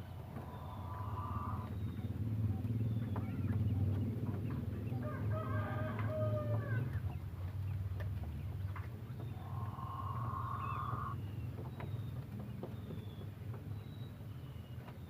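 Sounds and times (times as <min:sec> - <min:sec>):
steady low hum: 0:00.0 - 0:05.4, 0:06.0 - 0:13.0
fowl long held call: 0:00.5 - 0:01.7.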